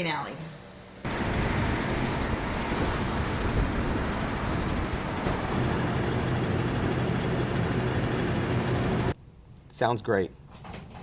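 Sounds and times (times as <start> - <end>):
road noise: 0.6 - 9.2
truck engine: 1.1 - 9.2.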